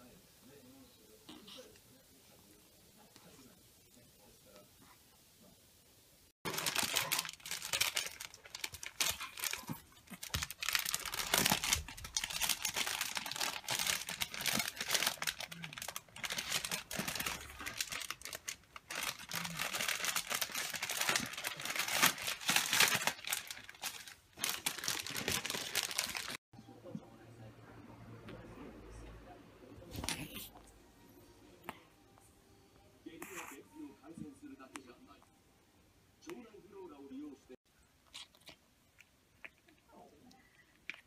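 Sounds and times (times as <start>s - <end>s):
plastic bag crinkling on floor: 6.5s - 26.4s.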